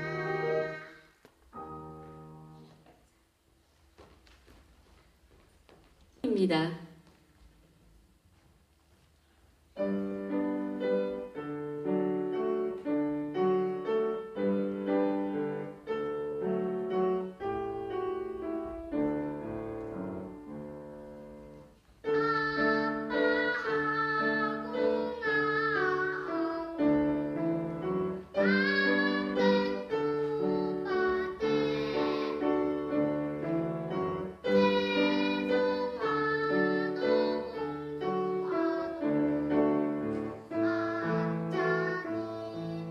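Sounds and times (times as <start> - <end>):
young child singing: 0.0 - 1.2, 22.0 - 33.2, 34.3 - 42.9
piano playing: 0.0 - 2.9, 9.7 - 42.9.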